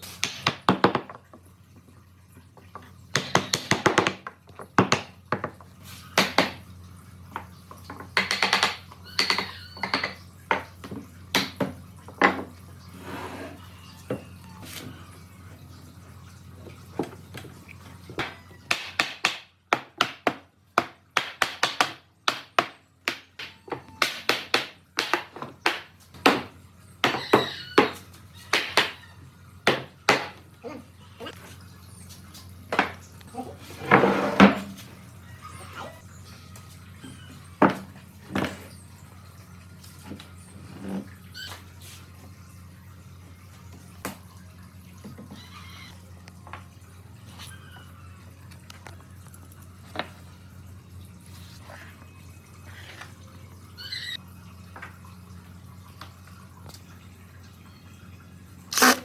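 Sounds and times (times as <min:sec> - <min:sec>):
tools knocking on wood: 0:07.4 - 0:12.5, 0:18.2 - 0:29.0.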